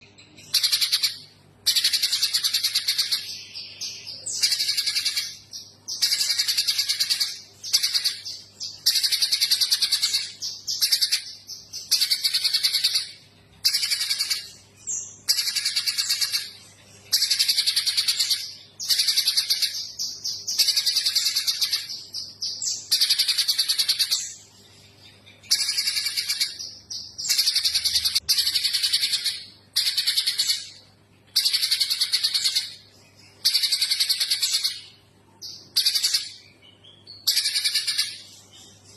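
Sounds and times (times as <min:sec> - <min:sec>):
bird singing rattling trills: 0:00.0 - 0:38.9.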